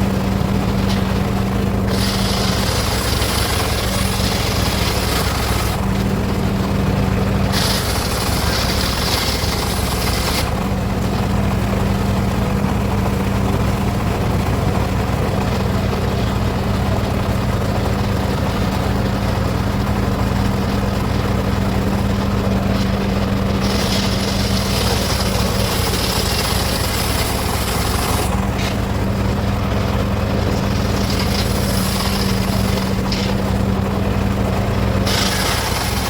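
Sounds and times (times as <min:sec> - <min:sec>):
circular saw motor hum: 0:00.0 - 0:13.3, 0:18.4 - 0:36.0
saw blade cutting wood hiss: 0:01.9 - 0:05.8, 0:07.5 - 0:10.5, 0:23.6 - 0:28.8, 0:30.8 - 0:33.4, 0:35.1 - 0:36.0.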